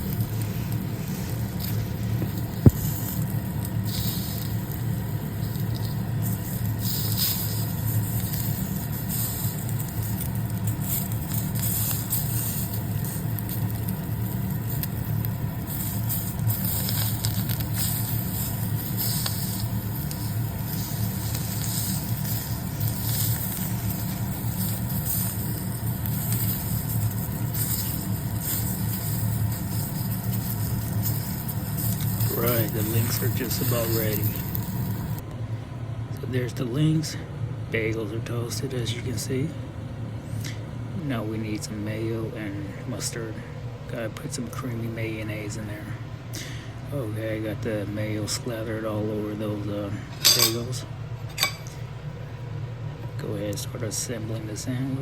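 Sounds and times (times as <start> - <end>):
sausage sizzling in a frying pan: 0.0 - 35.2
low steady hum: 0.0 - 55.0.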